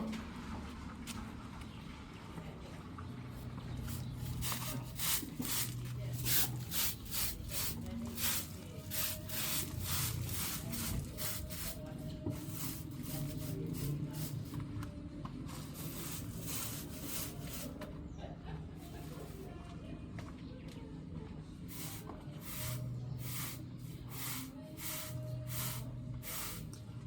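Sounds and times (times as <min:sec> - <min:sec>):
scratchy scraping strokes: 0:03.9 - 0:14.5, 0:15.5 - 0:17.8, 0:21.7 - 0:26.6.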